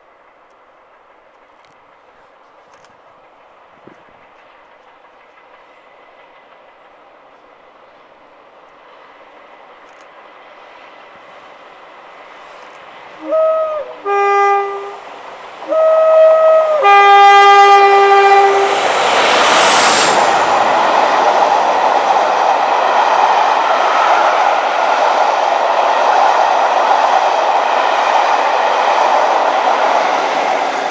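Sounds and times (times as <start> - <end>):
train engine and wheel noise: 0.0 - 30.9
two-tone locomotive horn: 13.2 - 19.0.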